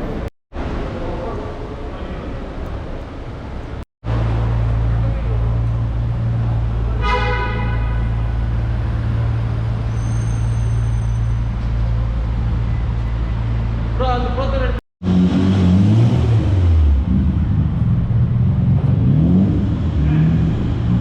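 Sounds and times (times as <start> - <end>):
car horn toot: 7.0 - 8.3.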